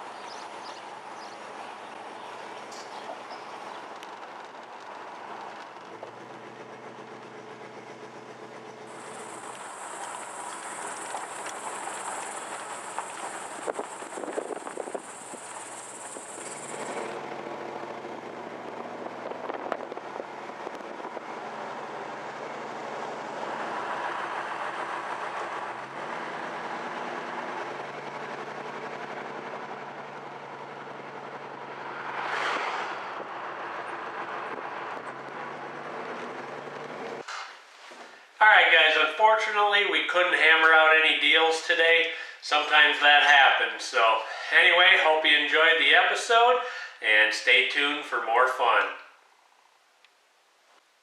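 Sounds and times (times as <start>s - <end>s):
engine hum and road rumble: 0.0s - 48.4s
high hiss: 8.9s - 17.1s.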